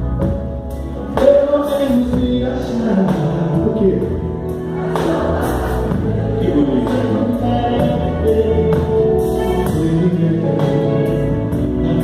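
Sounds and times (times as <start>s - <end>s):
live band music with singer: 0.0s - 12.0s.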